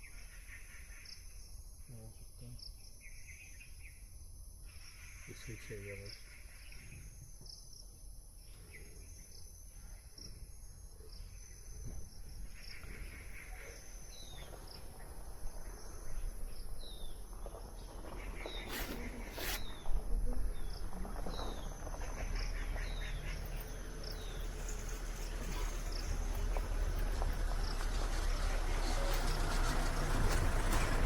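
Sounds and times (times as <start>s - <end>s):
insect drone: 6.9s - 27.9s.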